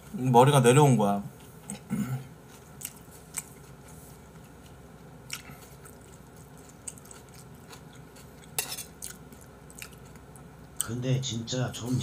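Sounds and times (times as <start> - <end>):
faint chewing: 1.3 - 10.9.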